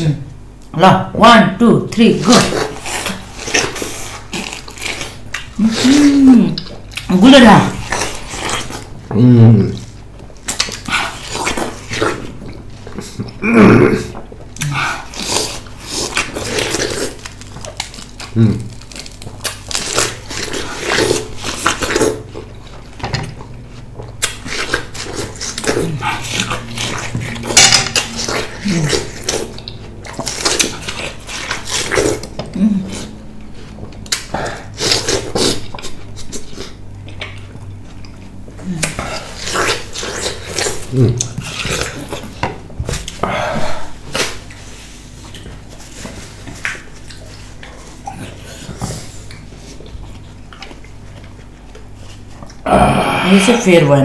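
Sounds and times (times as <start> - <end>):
chewing and mouth smacking: 9.7 - 13.4, 14.1 - 43.2, 44.1 - 52.6.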